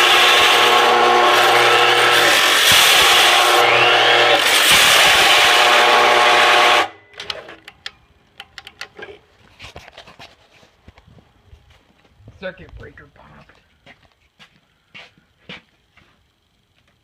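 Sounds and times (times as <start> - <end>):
chop saw cutting plastic: 0.0 - 6.8
faint clicks and knocks: 7.2 - 11.1.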